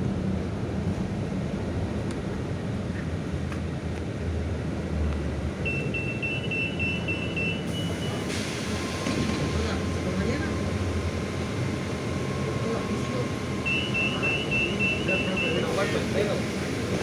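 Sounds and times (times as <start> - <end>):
bus engine and road rumble: 0.0 - 17.0
short high beeps: 5.6 - 8.2, 13.6 - 15.8.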